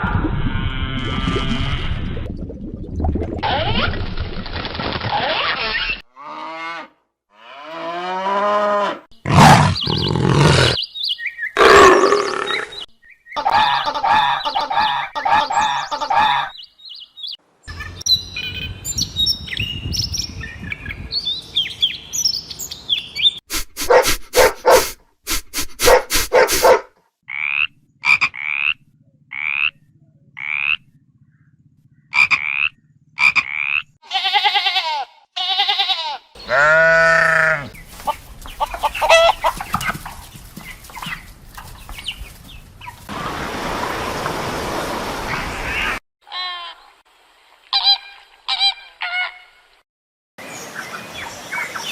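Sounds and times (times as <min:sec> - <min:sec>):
high repeated animal call: 0:05.4 - 0:10.9, 0:11.6 - 0:16.5, 0:23.5 - 0:30.9, 0:32.1 - 0:37.8, 0:38.6 - 0:39.6
animal chirping: 0:09.3 - 0:12.9
quick sharp animal calls: 0:23.5 - 0:26.8
honking calls: 0:36.4 - 0:40.0.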